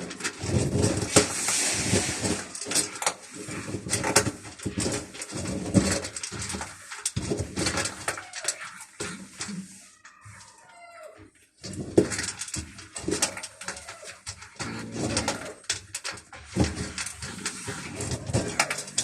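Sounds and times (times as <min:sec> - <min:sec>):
quick clicking and clattering: 0:11.6 - 0:19.0.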